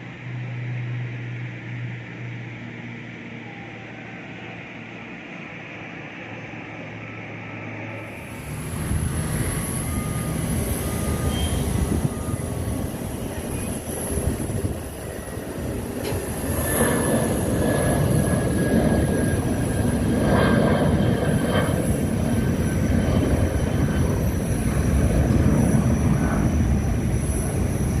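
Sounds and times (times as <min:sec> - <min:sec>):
aircraft engines at full power: 0:00.0 - 0:28.0.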